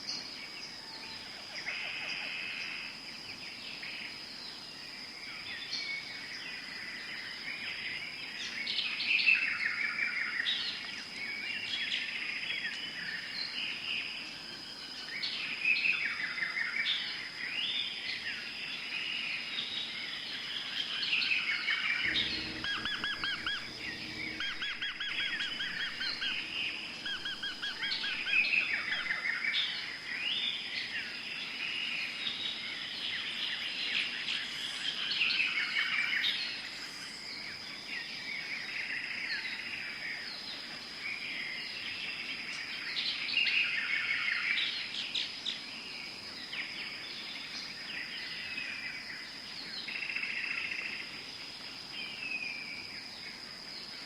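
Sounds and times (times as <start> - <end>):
forest birds singing: 0.0 - 54.0
steady high-pitched tone: 22.0 - 29.2.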